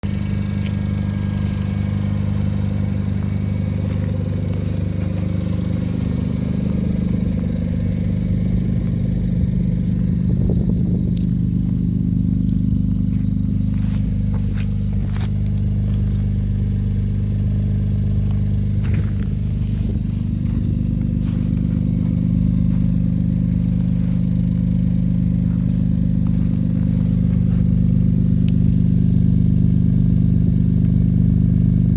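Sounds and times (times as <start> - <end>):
car engine idling: 0.0 - 31.9.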